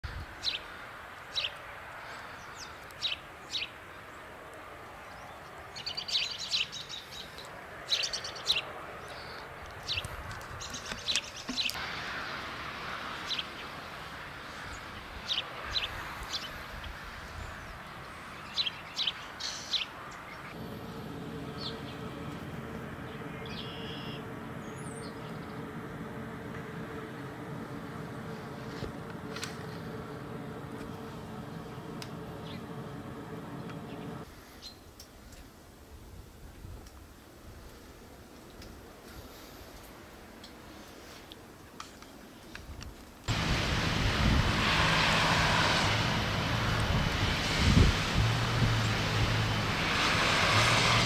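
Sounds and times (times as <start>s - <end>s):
songbirds chirping: 0.1s - 12.4s, 13.2s - 35.5s
low engine hum: 20.5s - 34.3s, 43.3s - 51.0s
steady hiss: 43.3s - 50.6s.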